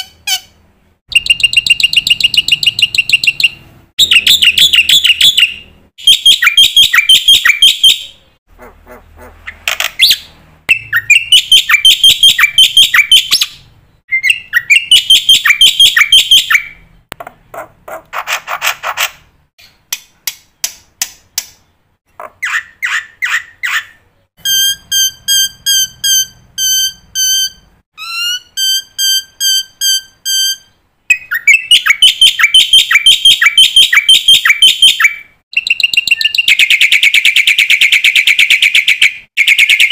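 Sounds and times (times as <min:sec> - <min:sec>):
bird whistling: 0:01.1 - 0:08.2, 0:10.0 - 0:16.8, 0:22.4 - 0:39.9.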